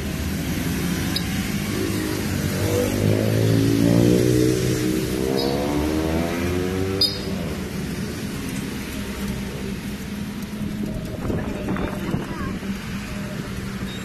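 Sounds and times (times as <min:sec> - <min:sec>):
vehicle engine accelerating: 0:00.0 - 0:13.9
traffic noise: 0:00.0 - 0:14.0.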